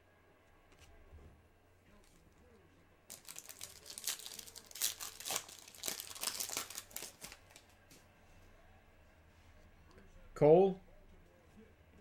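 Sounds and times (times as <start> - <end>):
foil wrapper crinkling and tearing: 3.1 - 7.7.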